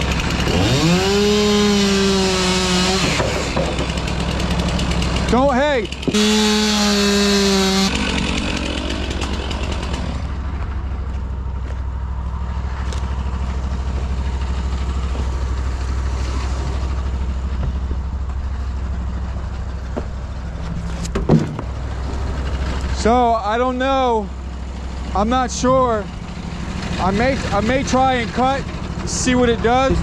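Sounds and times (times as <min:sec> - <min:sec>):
small gasoline engine idling: 0:00.0 - 0:01.6, 0:03.5 - 0:10.9, 0:21.7 - 0:30.0.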